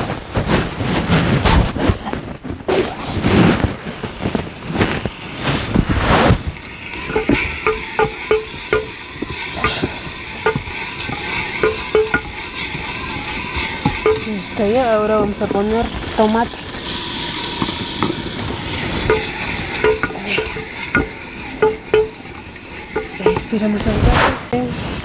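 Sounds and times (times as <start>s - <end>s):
onion sizzling in oil: 4.0s - 24.0s
wooden spoon knocking on pot: 7.0s - 15.7s, 19.0s - 23.8s.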